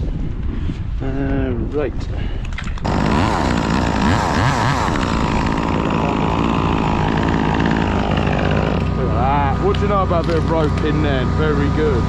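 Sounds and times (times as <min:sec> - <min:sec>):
chainsaw engine revving: 0:02.8 - 0:11.3.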